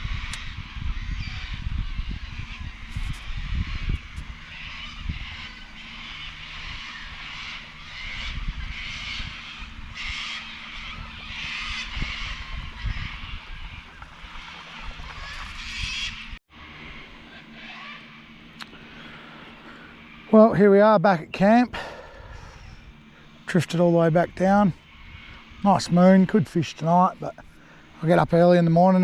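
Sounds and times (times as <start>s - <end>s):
wind buffeting microphone: 0.0s - 16.4s, 21.2s - 27.5s.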